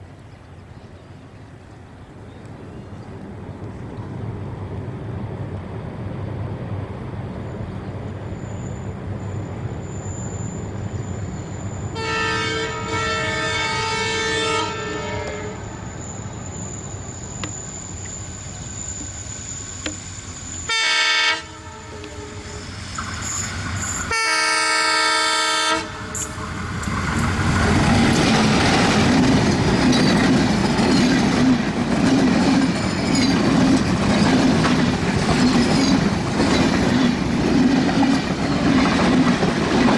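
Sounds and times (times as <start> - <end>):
diesel locomotive engine rumbling: 0.6 - 39.9
train horn blasts: 11.9 - 16.0, 20.7 - 22.7, 24.1 - 26.4
train wheels clacking over rail joints: 26.1 - 39.9.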